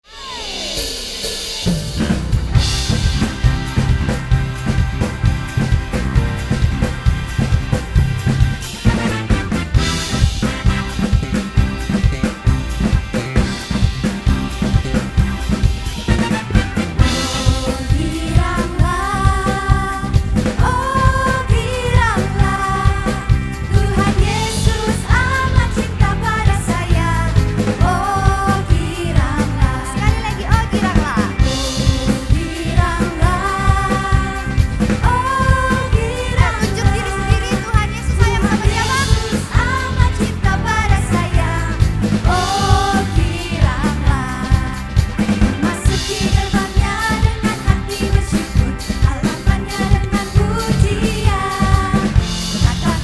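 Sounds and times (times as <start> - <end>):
drum kit steady beat: 0.0 - 53.0
live band playing: 0.0 - 53.0
people singing: 15.6 - 53.0.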